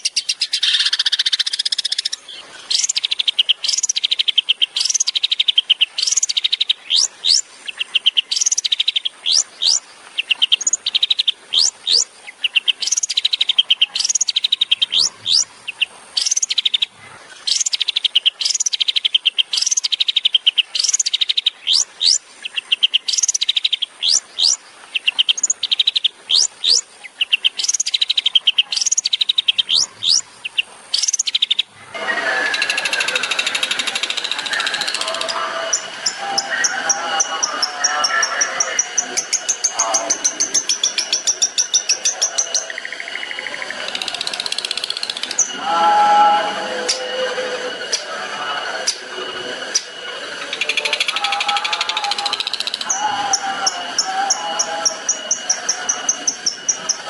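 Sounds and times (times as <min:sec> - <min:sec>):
bird singing rattling trills: 0:00.0 - 0:57.0
bird whistling upward sweeps: 0:12.8 - 0:15.5, 0:31.0 - 0:57.0.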